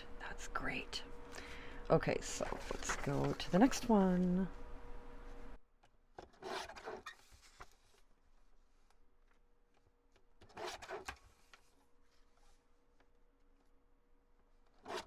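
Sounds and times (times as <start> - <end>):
faint steady hum: 0.0 - 5.6
paper rustling: 2.3 - 4.0.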